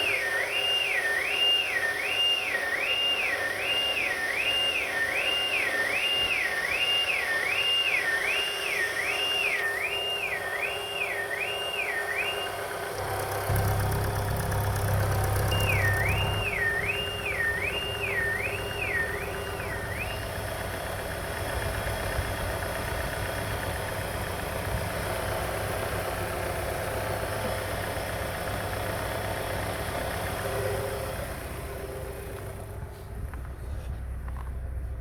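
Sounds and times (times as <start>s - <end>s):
car engine idling: 9.8s - 35.0s.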